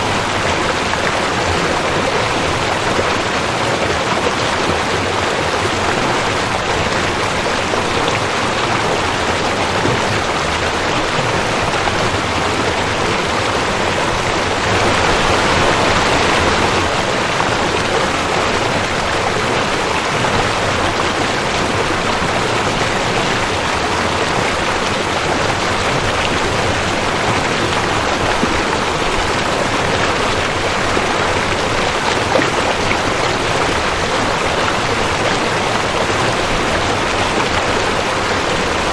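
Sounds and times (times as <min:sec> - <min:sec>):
creek water rushing: 0:00.0 - 0:38.9.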